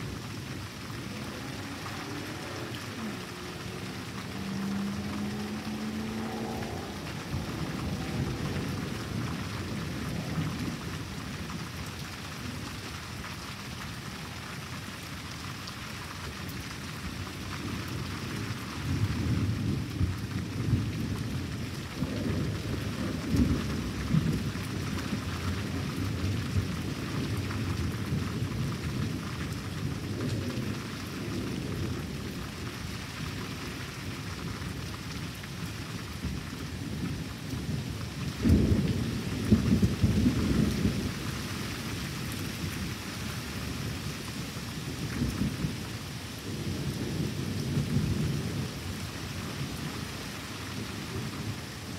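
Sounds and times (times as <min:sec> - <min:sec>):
thunder rumbling: 0:00.0 - 0:11.6, 0:36.2 - 0:42.0
steady rain: 0:00.0 - 0:51.9.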